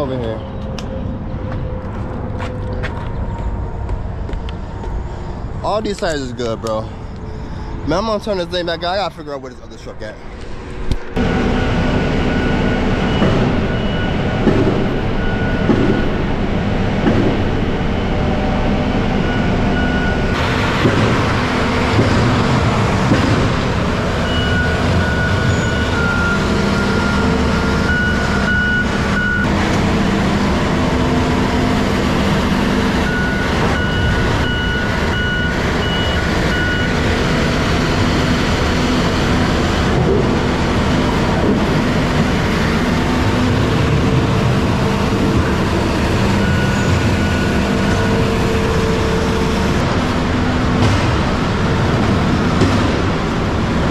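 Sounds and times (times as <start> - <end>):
diesel truck engine: 0.0 - 53.9
backup alarm beeping: 11.2 - 16.6, 19.1 - 20.4, 24.1 - 29.5, 32.9 - 37.0, 45.5 - 49.7.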